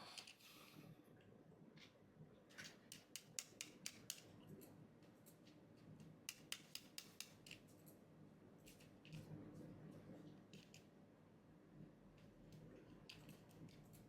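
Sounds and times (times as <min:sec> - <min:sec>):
small sharp clicks and taps: 0:02.6 - 0:08.0.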